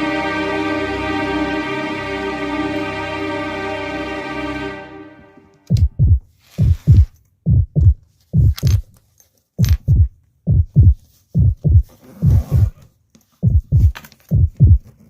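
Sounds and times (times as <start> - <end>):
heartbeat thumps: 5.7 - 8.9, 9.6 - 12.8, 13.4 - 14.9.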